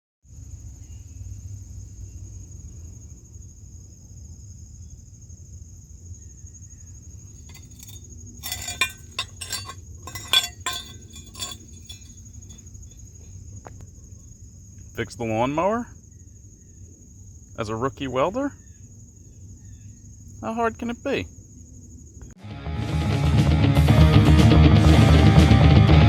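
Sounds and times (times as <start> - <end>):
crickets trilling: 0.3 - 22.3
low outdoor rumble: 7.5 - 12.6
sharp clinks and knocks: 7.5 - 12.6.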